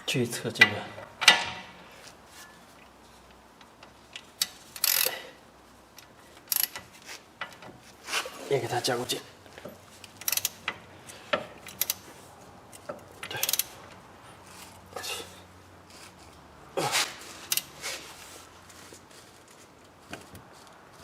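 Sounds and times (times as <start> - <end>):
wrench clicking on metal bolts: 0.6 - 1.7, 3.7 - 5.2, 6.0 - 7.7, 10.0 - 12.0, 12.7 - 13.8, 17.5 - 17.7.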